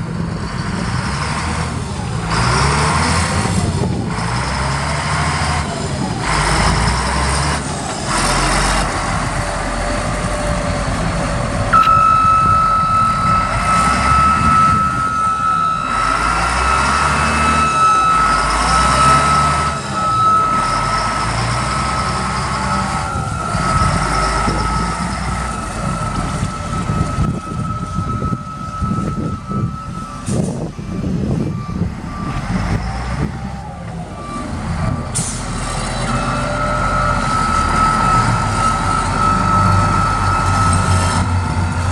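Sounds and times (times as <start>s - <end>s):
diesel engine running: 0.0s - 41.9s
high backup alarm: 8.2s - 32.5s, 35.8s - 41.9s.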